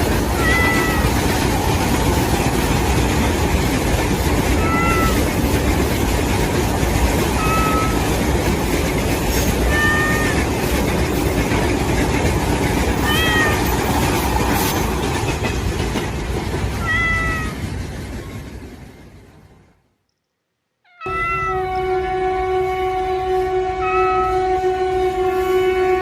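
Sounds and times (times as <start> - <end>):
cat meowing: 0.3 - 1.4, 4.6 - 5.4, 7.3 - 8.2, 9.5 - 10.6, 13.0 - 13.8, 16.8 - 17.7, 20.9 - 21.7.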